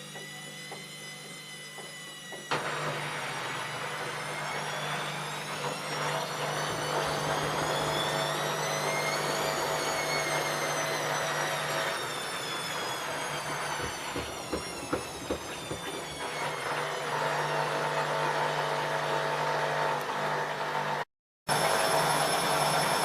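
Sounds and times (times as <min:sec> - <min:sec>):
washing machine motor whine: 0:00.0 - 0:23.0
sharp clicks and knocks: 0:13.4 - 0:16.2.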